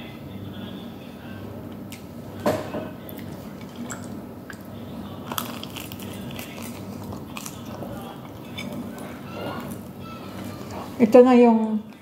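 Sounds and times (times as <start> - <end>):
person chewing food: 3.0 - 11.0.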